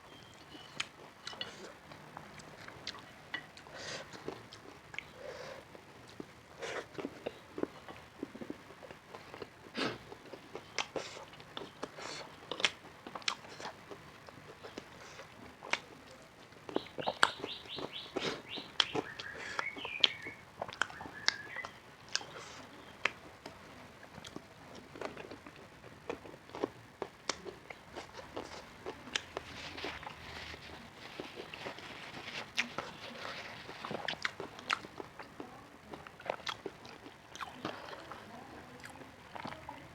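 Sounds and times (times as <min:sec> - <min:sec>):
crunchy food chewing: 0:00.1 - 0:39.9
high chirping: 0:16.7 - 0:21.8.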